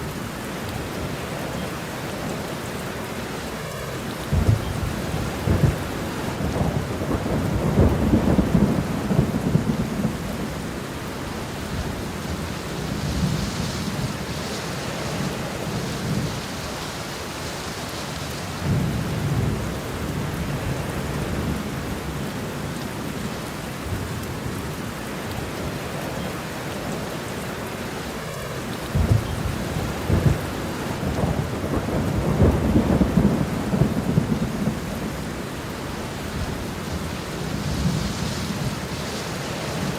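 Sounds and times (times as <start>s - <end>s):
steady rain: 0.0s - 39.9s
low rolling thunder: 3.6s - 17.1s, 18.3s - 24.8s, 28.8s - 39.9s.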